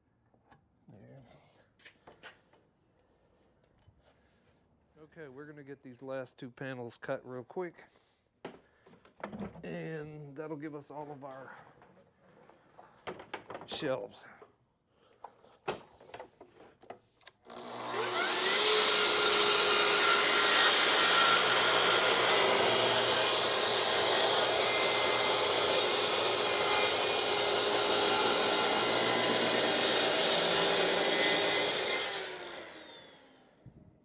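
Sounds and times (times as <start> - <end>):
electric saw cutting wood: 17.5 - 33.6.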